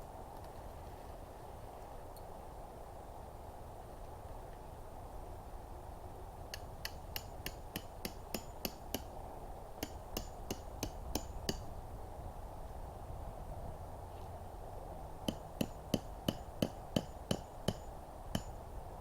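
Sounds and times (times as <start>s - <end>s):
ringing metallic hammer blows: 15.3s - 18.6s.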